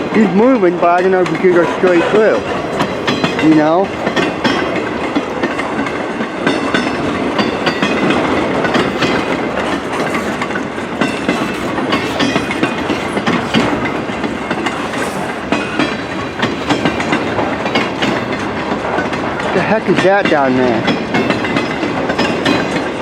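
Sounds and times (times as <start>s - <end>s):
train wheels clicking over rail joints: 0.0s - 23.0s
high wheel squeals: 7.4s - 18.4s.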